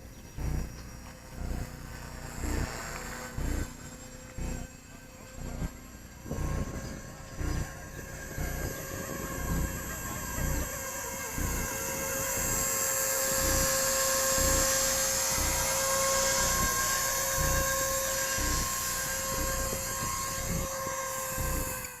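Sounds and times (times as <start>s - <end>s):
electric motor whine and rotor hum: 0.0s - 22.0s
wind buffeting microphone: 5.4s - 21.8s.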